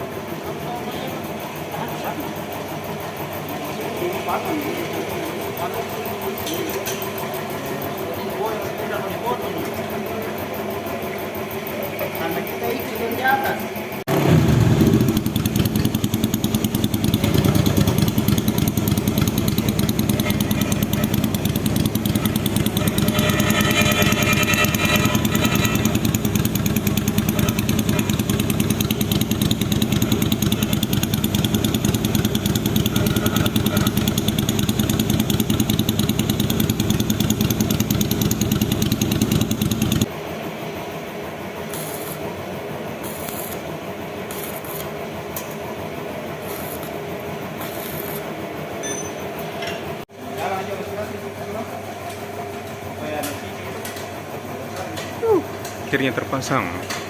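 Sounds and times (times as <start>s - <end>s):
motorcycle engine running: 0.0s - 9.4s, 14.1s - 48.8s.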